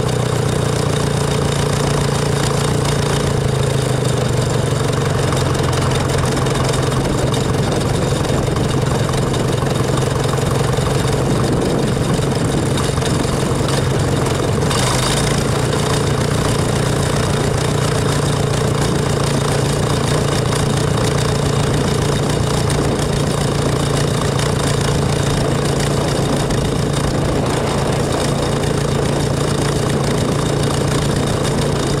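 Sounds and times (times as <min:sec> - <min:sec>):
tractor engine running: 0:00.0 - 0:32.0
brief rush of noise: 0:26.8 - 0:30.2.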